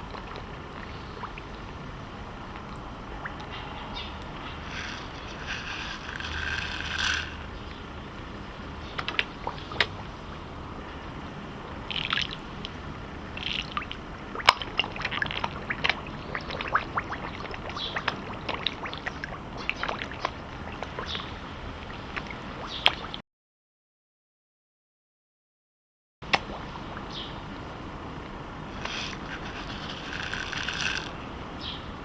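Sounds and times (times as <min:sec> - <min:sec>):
fish smacking and gulping at water surface: 0:08.8 - 0:10.6, 0:11.9 - 0:12.8, 0:13.4 - 0:23.2.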